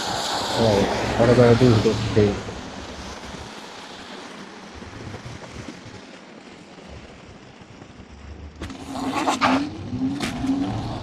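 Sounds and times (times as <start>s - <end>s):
wind rushing over microphone: 0.0s - 4.0s, 4.6s - 6.1s
wheel spinning on slush: 0.0s - 11.0s.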